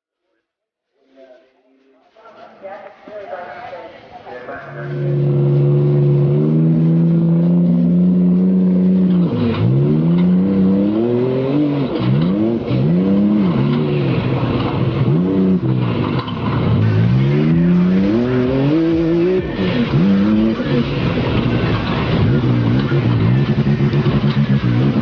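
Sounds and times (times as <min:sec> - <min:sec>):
rally car engine accelerating: 0:04.8 - 0:25.0.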